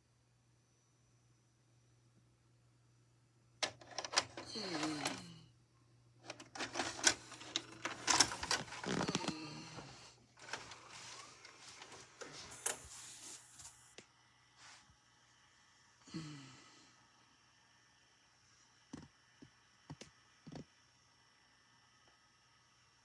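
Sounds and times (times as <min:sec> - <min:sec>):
plastic cassette case rattling: 0:03.6 - 0:05.2, 0:06.2 - 0:09.3.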